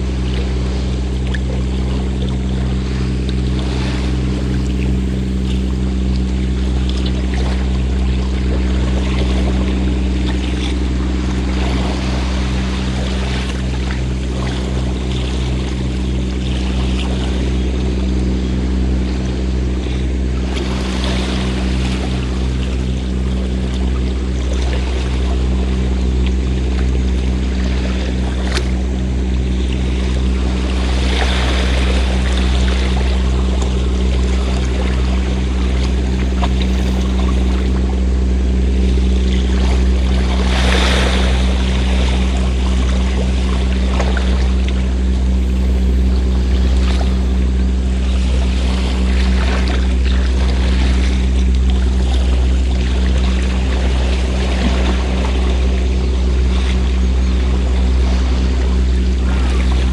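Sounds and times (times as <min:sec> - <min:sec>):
boat engine humming: 0:00.0 - 0:59.9
waves washing: 0:00.0 - 0:59.9.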